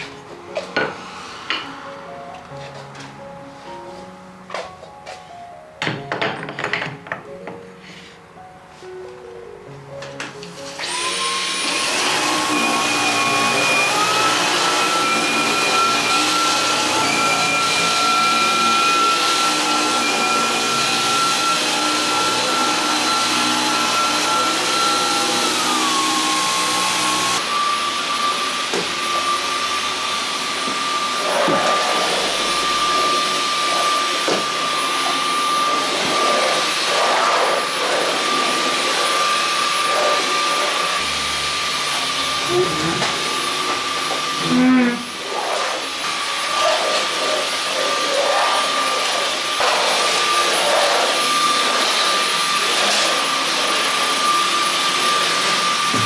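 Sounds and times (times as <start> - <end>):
appliance motor and fan whirring: 10.3 - 35.7.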